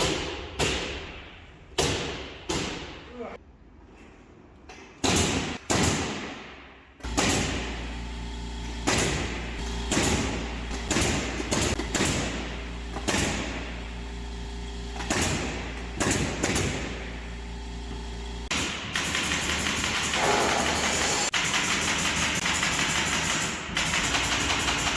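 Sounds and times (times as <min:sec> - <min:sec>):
machine humming: 0:07.0 - 0:18.6.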